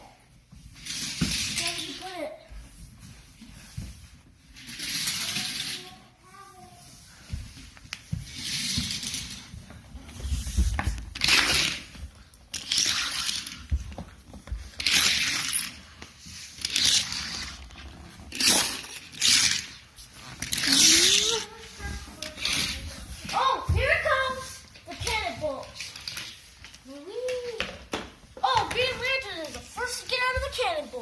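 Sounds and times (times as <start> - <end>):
toy cars rolling down plastic track: 4.6 - 5.9, 12.5 - 13.7, 14.8 - 15.8, 16.4 - 19.8, 20.4 - 21.4.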